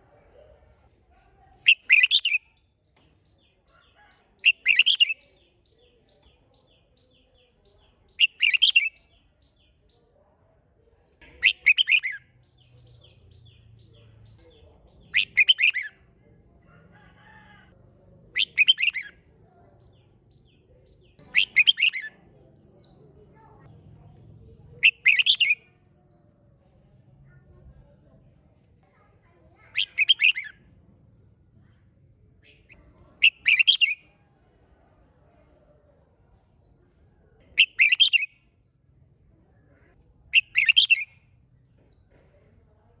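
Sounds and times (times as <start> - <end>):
bird singing warbled phrase: 1.6 - 2.6, 4.4 - 10.0, 11.0 - 16.1, 18.2 - 19.2, 19.8 - 26.3, 29.5 - 30.6, 32.4 - 34.1, 37.5 - 38.8, 39.8 - 42.1
faint bird chirps: 1.6 - 2.6, 3.5 - 17.6, 18.3 - 26.4, 32.4 - 36.9, 37.5 - 42.2.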